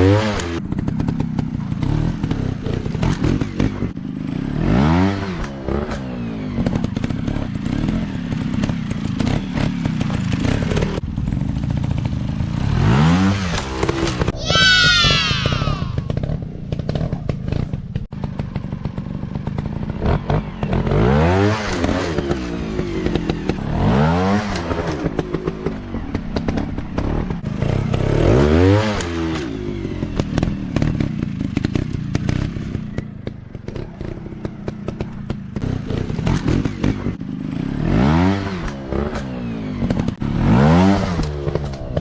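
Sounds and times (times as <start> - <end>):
dirt bike engines revving: 12.4 - 18.7.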